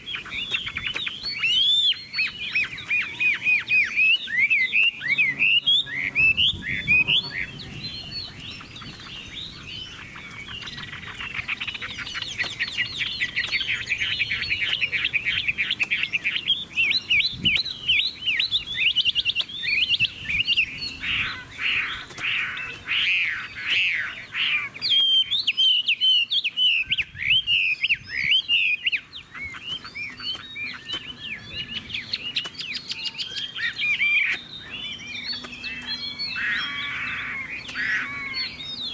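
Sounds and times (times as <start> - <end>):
songbird singing trills and whistles: 0.0 - 38.9.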